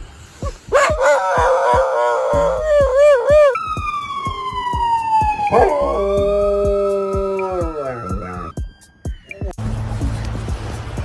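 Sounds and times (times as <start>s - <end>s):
background music with steady beat: 0.0s - 11.0s
dog howling: 0.7s - 3.7s, 5.3s - 8.5s.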